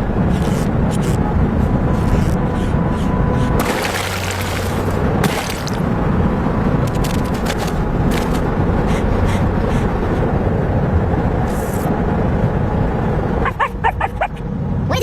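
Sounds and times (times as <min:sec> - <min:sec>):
clicks and scrapes: 0:06.8 - 0:08.5.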